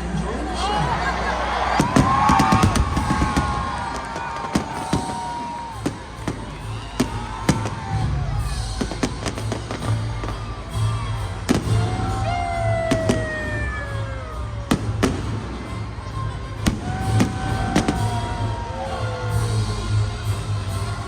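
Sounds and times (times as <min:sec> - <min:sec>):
fireworks bangs: 0:01.7 - 0:13.8, 0:16.6 - 0:18.4
music with heavy pulsing bass: 0:05.7 - 0:21.0.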